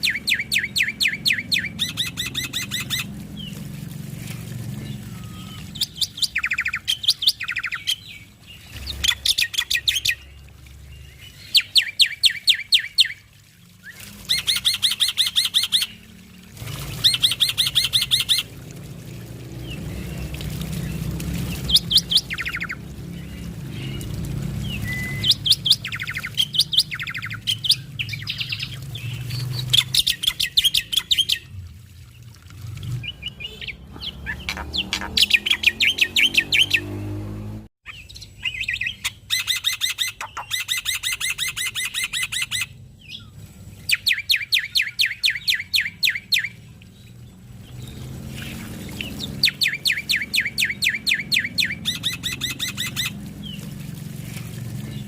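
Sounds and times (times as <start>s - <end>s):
bird singing high chattering notes: 0.0s - 3.6s, 4.8s - 13.2s, 33.0s - 37.0s.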